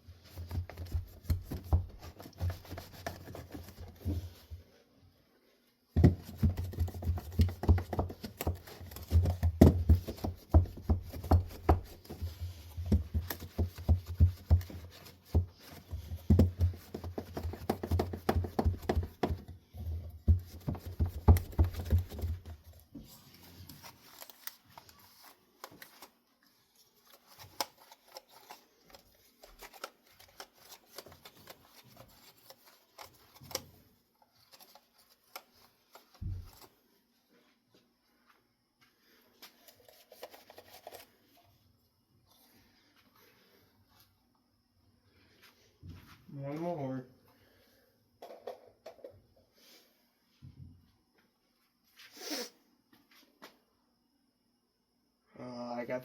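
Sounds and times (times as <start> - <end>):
hands rubbing and scraping objects: 0.2 - 4.4.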